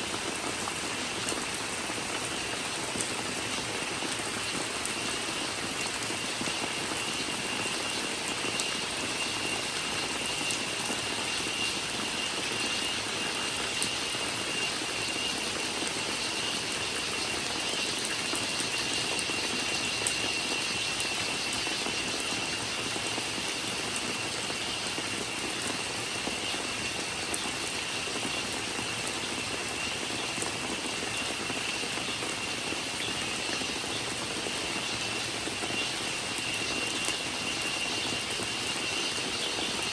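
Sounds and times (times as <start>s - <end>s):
high cicada drone: 0.0s - 39.9s
steady rain falling: 0.0s - 39.9s
sharp drip ticks: 4.8s - 25.4s.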